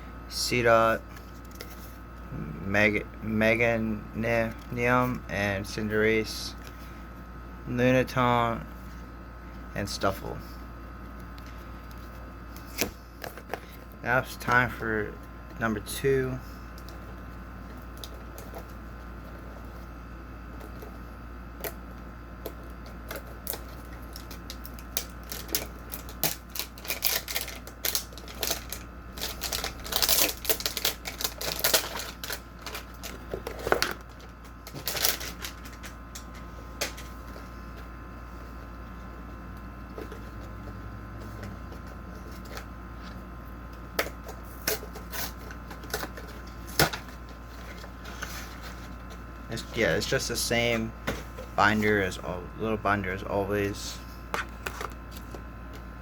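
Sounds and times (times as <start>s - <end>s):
faint steady hum: 0.0s - 56.0s
packaging crackling and rustling: 22.4s - 37.0s.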